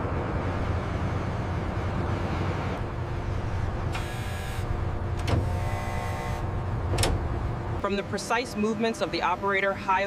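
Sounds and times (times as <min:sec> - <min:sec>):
large vehicle engine rumble: 0:00.0 - 0:05.6.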